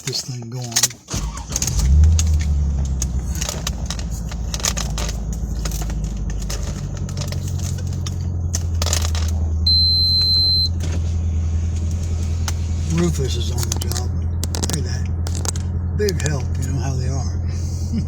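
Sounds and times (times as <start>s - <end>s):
small clicks and knocks: 0.0s - 9.6s, 13.6s - 16.7s
car engine idling: 1.1s - 18.0s
high electronic beep: 9.6s - 10.8s.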